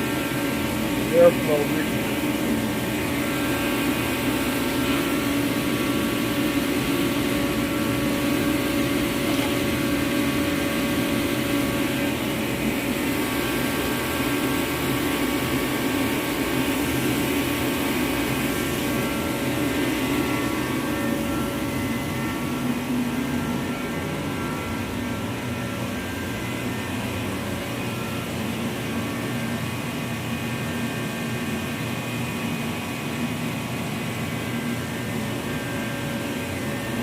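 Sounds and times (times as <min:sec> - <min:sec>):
forced-air heater running: 0:00.0 - 0:37.0.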